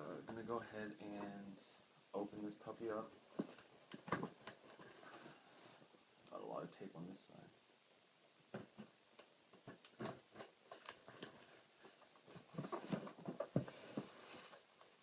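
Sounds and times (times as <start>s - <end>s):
tape and cardboard scrapes and rustles: 3.4s - 5.8s, 9.6s - 15.0s.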